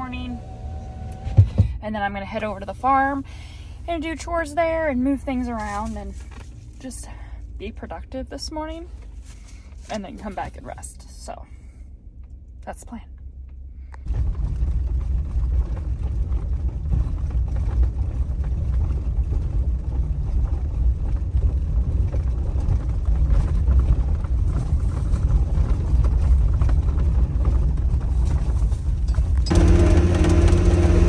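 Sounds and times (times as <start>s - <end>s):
vehicle engine and road rumble: 0.0s - 31.0s
small knocks and rattles: 1.3s - 1.8s.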